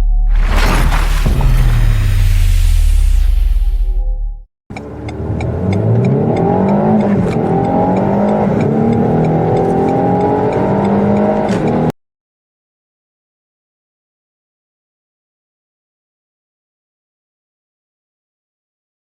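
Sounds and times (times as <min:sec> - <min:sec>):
car engine accelerating hard: 0:04.7 - 0:11.9.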